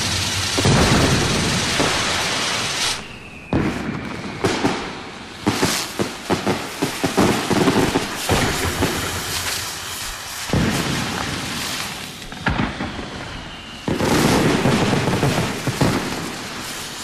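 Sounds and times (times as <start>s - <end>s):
fireworks blasts and cracks: 0.0s - 17.0s.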